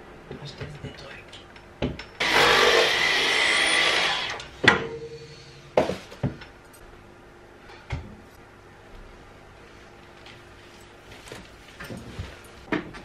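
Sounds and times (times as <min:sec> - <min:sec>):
stick vacuum cleaner whine: 0:02.2 - 0:04.5.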